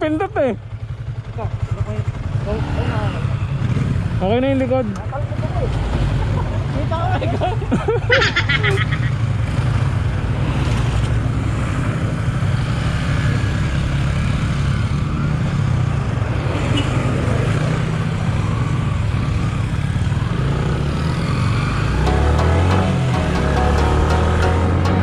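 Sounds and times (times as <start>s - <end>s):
motorcycle engine running: 0.0s - 6.8s
music: 22.0s - 25.0s.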